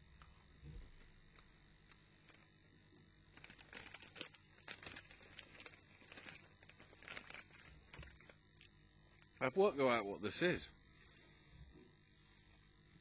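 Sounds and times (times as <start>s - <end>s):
biscuit crunching while eating: 0.7s - 9.4s.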